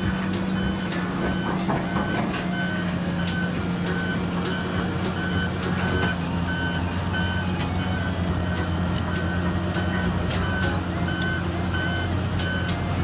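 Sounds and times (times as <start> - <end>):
diesel engine running: 0.0 - 13.0
reversing alarm beeping: 0.0 - 13.0
faint knocks: 0.6 - 4.6.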